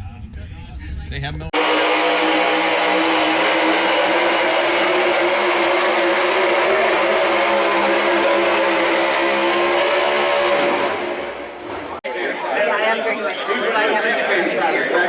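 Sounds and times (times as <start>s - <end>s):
pulling engine at full throttle: 1.5s - 12.0s.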